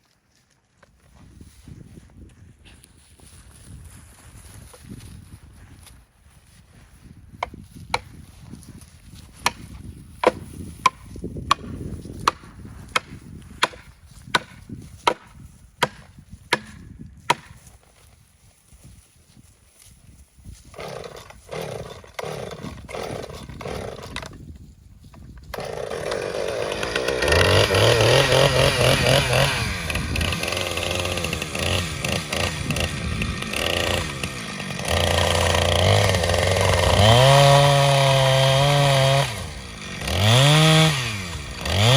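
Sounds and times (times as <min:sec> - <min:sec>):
wedge being hammered into wood: 0:09.4 - 0:17.6
chainsaw running and cutting: 0:12.2 - 0:17.5, 0:20.6 - 0:24.4, 0:25.5 - 0:41.9.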